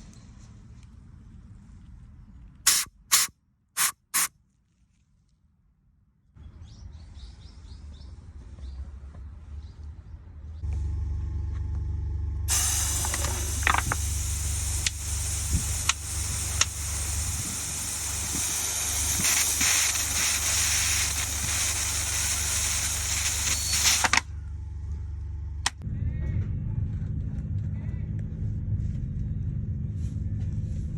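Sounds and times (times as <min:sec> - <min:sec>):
loud hiss of rushing air: 0:02.7 - 0:04.3, 0:12.5 - 0:24.2
low mechanical hum: 0:07.9 - 0:30.9
sharp clicks: 0:14.8 - 0:16.9.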